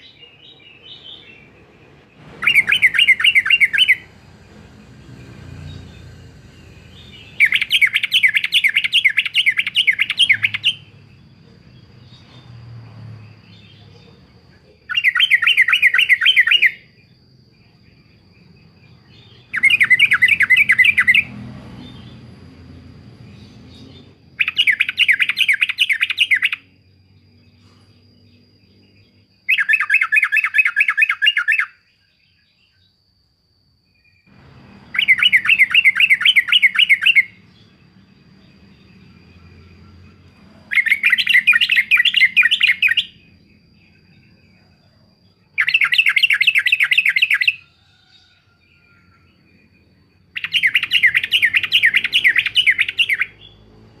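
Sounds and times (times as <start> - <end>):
bird singing chattering phrases: 0.0 - 12.5, 13.5 - 16.9, 18.0 - 22.3, 34.6 - 39.1, 39.7 - 44.2, 50.3 - 53.8.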